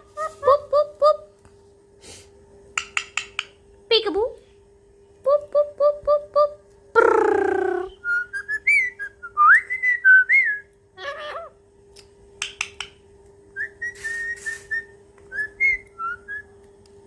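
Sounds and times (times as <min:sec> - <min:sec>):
steady low hum: 0:00.0 - 0:17.0
parrot whistling: 0:13.6 - 0:16.4.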